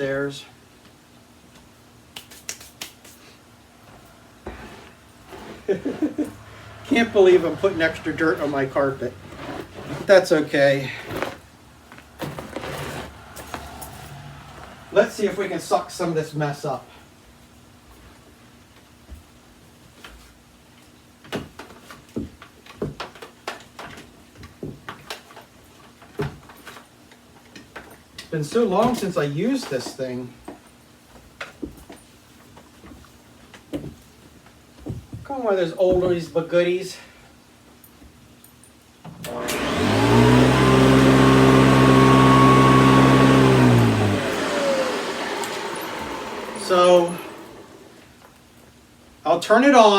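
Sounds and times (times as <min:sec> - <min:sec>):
vacuum cleaner motor whine: 0:03.9 - 0:10.1, 0:10.9 - 0:15.5, 0:39.2 - 0:48.1
vacuum cleaner clicks and knocks: 0:42.7 - 0:47.8.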